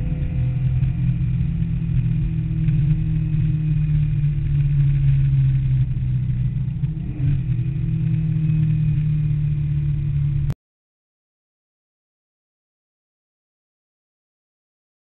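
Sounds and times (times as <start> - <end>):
car engine running under load: 0.0 - 10.6.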